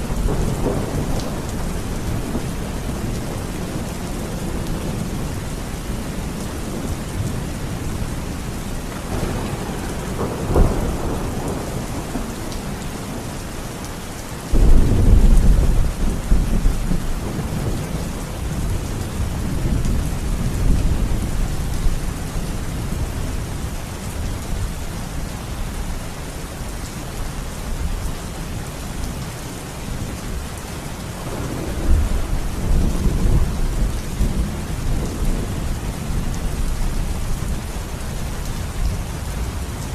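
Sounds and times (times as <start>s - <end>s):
steady rain: 0.0s - 39.9s
rolling thunder: 9.1s - 13.3s, 14.5s - 22.0s, 31.2s - 37.7s.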